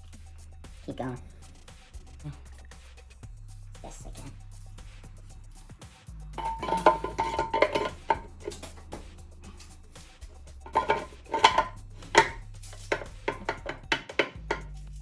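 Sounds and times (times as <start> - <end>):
metal parts clinking: 6.4 - 9.8, 10.6 - 14.8
metallic ring: 6.4 - 14.9.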